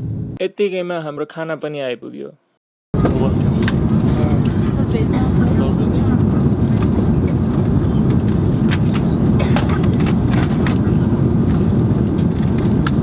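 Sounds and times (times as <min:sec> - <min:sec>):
aircraft cabin engine rumble: 0:03.0 - 0:13.0.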